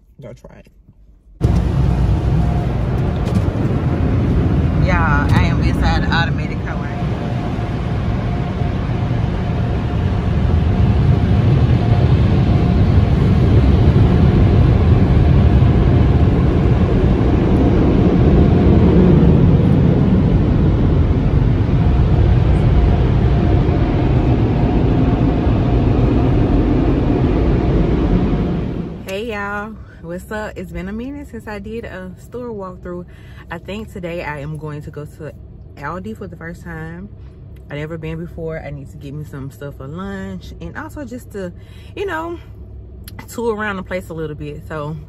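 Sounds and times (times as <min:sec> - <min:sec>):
car wash rushing noise: 0:01.4 - 0:29.4.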